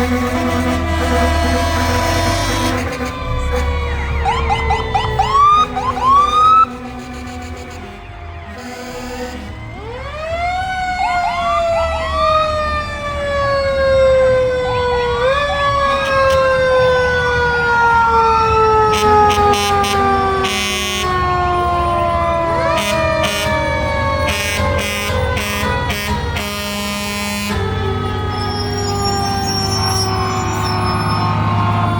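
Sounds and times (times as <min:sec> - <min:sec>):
short sharp horn blasts: 0:00.0 - 0:03.9, 0:24.3 - 0:27.7
fire truck sirens wailing: 0:00.0 - 0:31.9
truck engines rumbling: 0:00.0 - 0:31.9.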